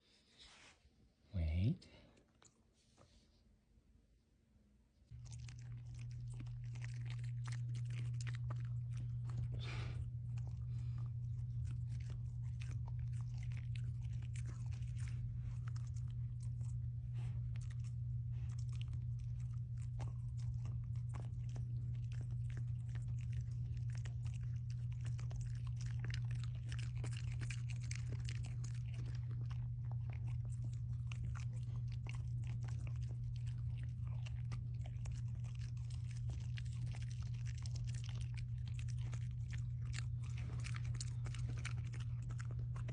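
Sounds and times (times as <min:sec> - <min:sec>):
steady low hum: 0:00.0 - 0:42.9
dog crunching and chewing food: 0:05.1 - 0:42.9.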